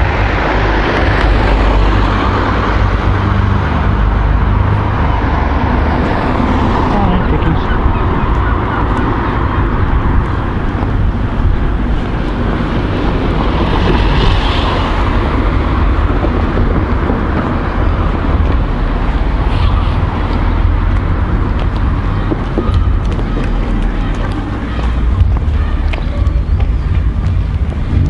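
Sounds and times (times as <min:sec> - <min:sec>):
road traffic rumble: 0:00.0 - 0:28.0
vehicle passing by: 0:00.0 - 0:28.0.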